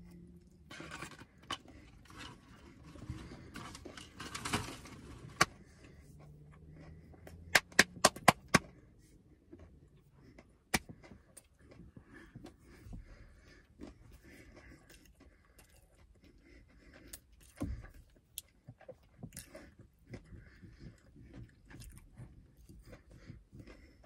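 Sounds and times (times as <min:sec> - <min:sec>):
chewing and mouth sounds: 0:05.1 - 0:24.0.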